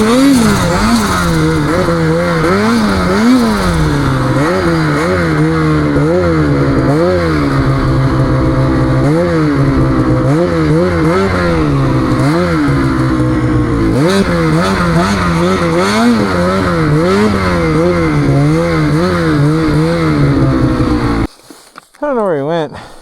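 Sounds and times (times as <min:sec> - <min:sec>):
snowmobile engine revving: 0:00.0 - 0:21.4.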